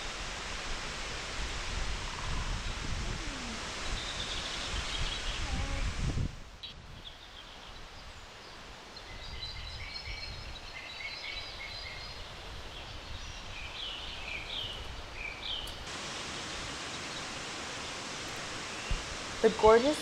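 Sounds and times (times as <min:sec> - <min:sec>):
waterfall rushing: 0:00.0 - 0:06.0, 0:15.8 - 0:20.0
small birds chirping: 0:02.1 - 0:05.9, 0:06.6 - 0:20.0.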